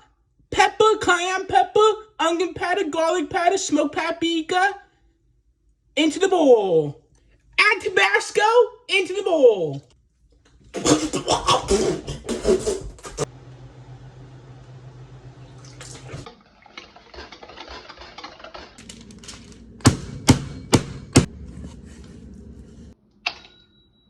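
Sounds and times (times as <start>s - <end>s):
steady low hum: 10.8s - 16.3s, 18.8s - 23.0s
liquid poured and stirred: 15.4s - 19.8s.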